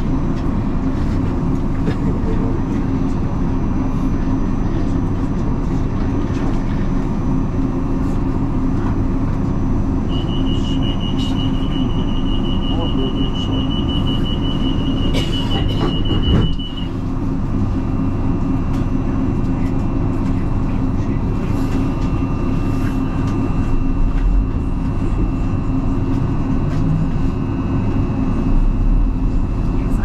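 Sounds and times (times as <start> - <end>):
train carriage rumble: 0.0 - 30.0
faint whine: 6.0 - 17.1, 20.3 - 30.0
rapid electronic beeping: 10.1 - 17.0
train doors shutting: 10.1 - 17.0.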